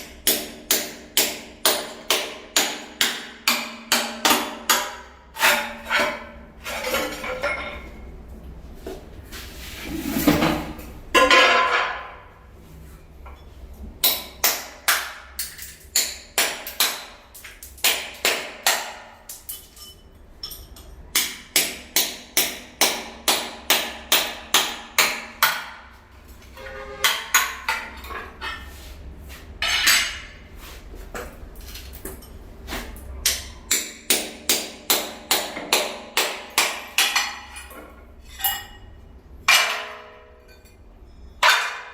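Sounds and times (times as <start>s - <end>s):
scraping sounds: 5.4s - 7.4s, 9.1s - 12.9s, 26.4s - 31.1s.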